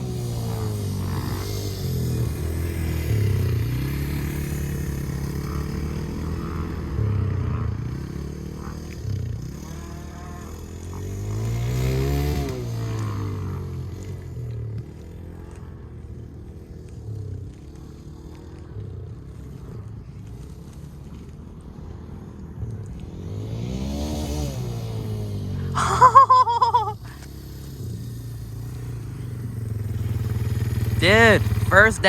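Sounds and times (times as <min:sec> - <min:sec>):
dirt bike engine revving: 0:00.0 - 0:32.0
dirt bike passing by: 0:00.0 - 0:32.0.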